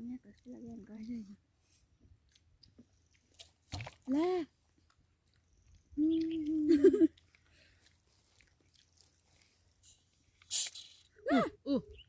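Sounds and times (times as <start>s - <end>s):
short breathy hiss: 10.4s - 11.1s.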